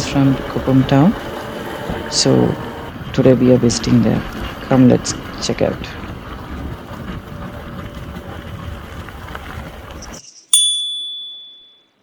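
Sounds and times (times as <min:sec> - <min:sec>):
road noise: 0:00.0 - 0:10.2
wind: 0:00.0 - 0:12.0
bright bell-like ding: 0:10.6 - 0:11.8.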